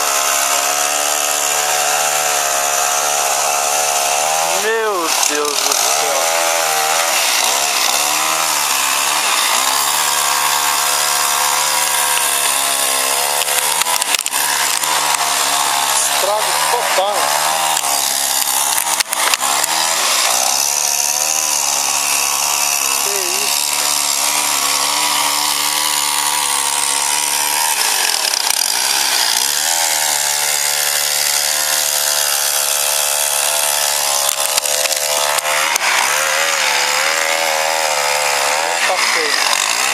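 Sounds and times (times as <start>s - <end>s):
two-stroke chainsaw running: 0.0s - 39.9s
sharp clicks: 13.2s - 15.4s, 17.7s - 20.7s, 34.1s - 36.1s.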